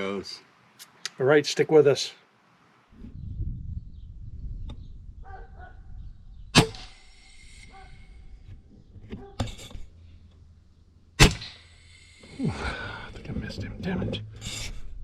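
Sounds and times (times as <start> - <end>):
air rifle shots: 6.6 - 7.6, 11.2 - 12.2.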